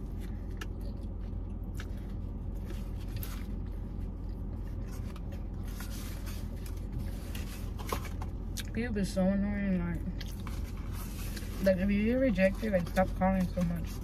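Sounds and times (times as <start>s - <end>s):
person chewing with wet mouth sounds: 0.0s - 8.8s, 9.9s - 11.6s.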